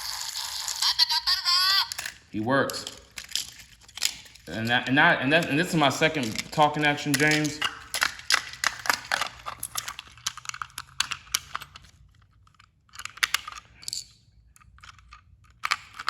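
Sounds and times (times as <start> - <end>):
plastic toy train clicking and rattling: 0.0 - 16.0.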